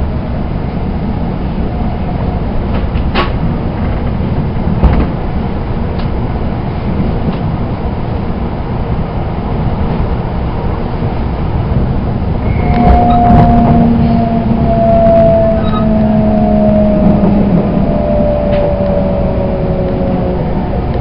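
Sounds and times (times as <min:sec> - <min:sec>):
train running rumble: 0:00.0 - 0:21.0
steady whine: 0:07.6 - 0:21.0.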